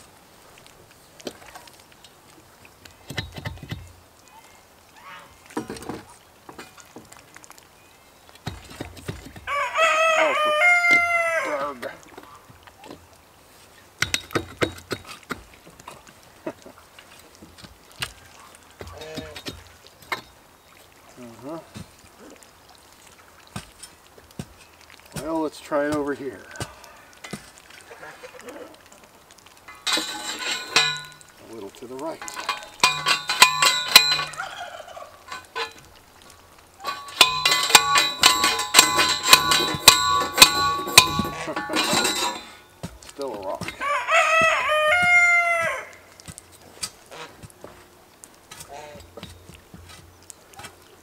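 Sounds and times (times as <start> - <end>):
sharp knocks and clanks: 29.7 - 31.4, 32.1 - 34.4, 35.3 - 35.9, 36.8 - 43.8.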